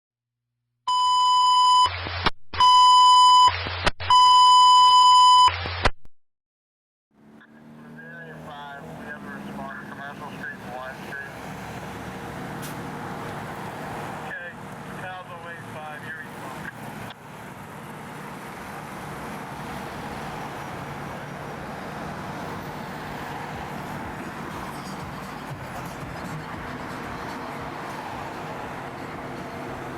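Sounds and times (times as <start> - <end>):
long electronic beeps: 2.6 - 5.6
motor traffic noise: 7.1 - 29.9.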